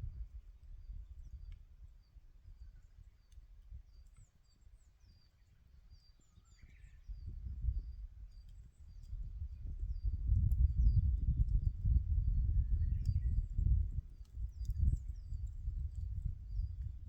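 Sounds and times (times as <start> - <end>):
small birds chirping: 0.1 - 17.0
campfire popping: 7.4 - 17.0.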